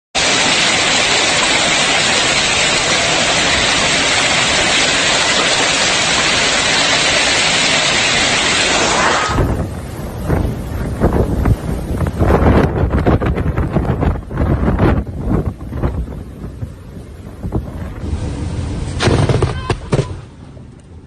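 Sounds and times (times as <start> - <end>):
heavy hail and rain: 0.2 - 20.3
wind buffeting microphone: 9.3 - 20.8.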